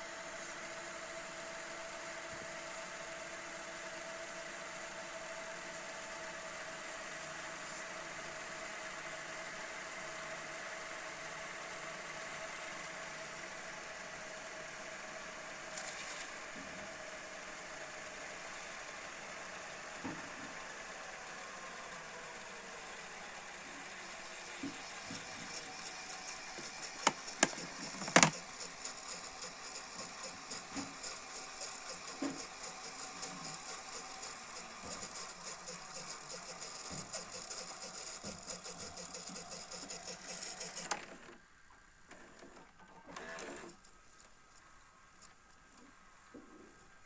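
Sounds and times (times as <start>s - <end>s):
tape mechanism whirring: 22.1s - 41.4s
short mechanical sound: 25.4s - 41.2s.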